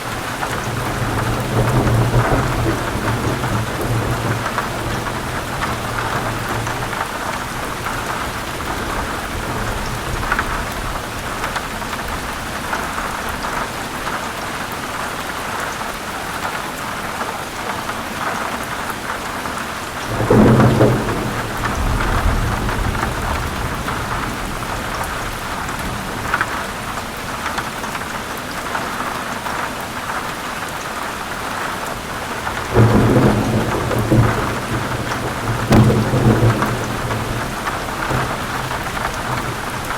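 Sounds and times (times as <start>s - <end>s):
heavy rain on leaves: 0.0s - 39.9s
thunder rumbling: 0.2s - 13.4s, 20.0s - 27.5s, 32.0s - 39.9s.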